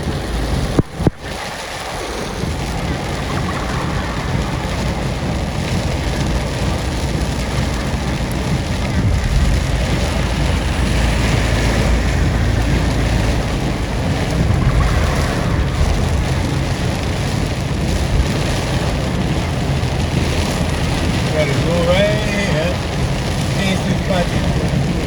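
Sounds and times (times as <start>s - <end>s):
car driving rumble: 0.0s - 25.0s
road and wind noise: 0.0s - 25.0s.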